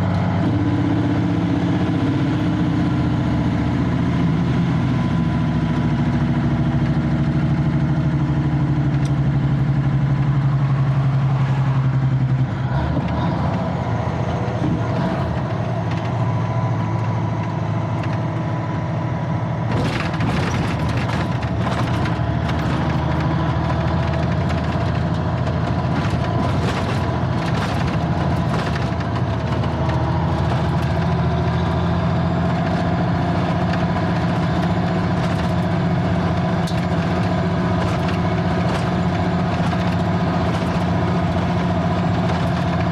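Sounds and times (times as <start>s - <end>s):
diesel truck engine running: 0.0s - 42.9s
clicks and rattles: 19.7s - 31.3s, 33.4s - 42.9s.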